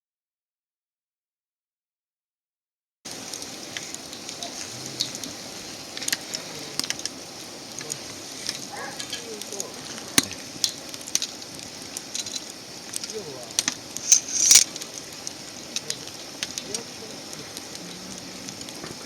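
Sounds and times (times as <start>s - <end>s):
wood fire crackling and popping: 3.1s - 19.0s
faint voices: 4.2s - 10.6s, 13.0s - 19.0s.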